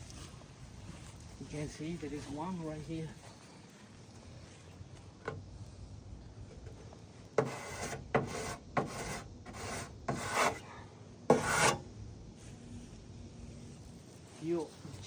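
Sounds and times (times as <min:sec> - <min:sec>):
chalk rasping on roofing: 0:07.4 - 0:10.6, 0:11.3 - 0:11.8.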